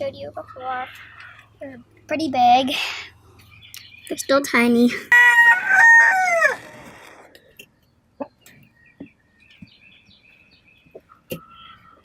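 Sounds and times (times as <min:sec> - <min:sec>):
rooster crowing: 0:05.1 - 0:07.3.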